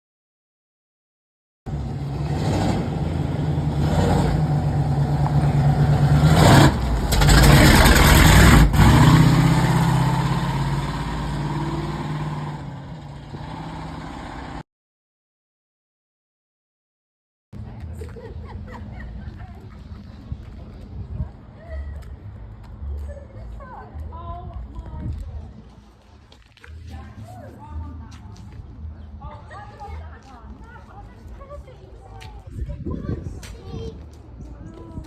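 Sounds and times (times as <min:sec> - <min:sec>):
vehicle engine revving: 0:01.7 - 0:14.6.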